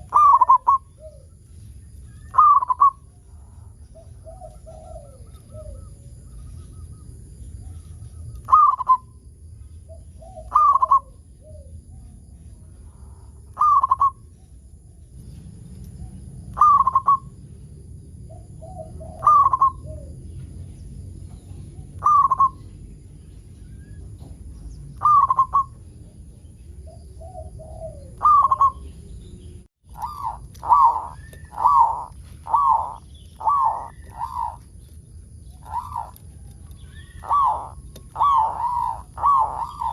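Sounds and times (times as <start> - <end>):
dove cooing: 0.0 - 1.4, 2.2 - 6.3, 8.4 - 9.1, 9.9 - 11.8, 13.0 - 14.2, 16.4 - 17.3, 18.3 - 20.4, 21.7 - 22.6, 25.0 - 25.8, 26.8 - 29.0, 29.9 - 34.8, 35.4 - 39.9.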